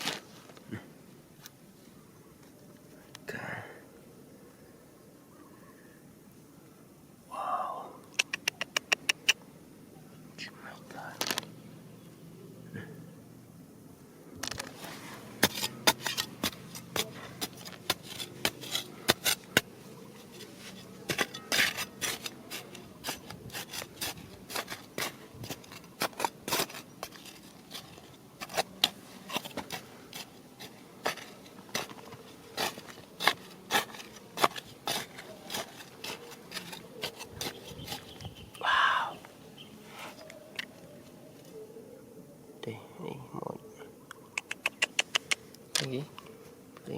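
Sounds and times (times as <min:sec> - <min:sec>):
stones and gravel clicking: 0:11.0 - 0:11.5, 0:14.4 - 0:14.8, 0:15.4 - 0:38.3.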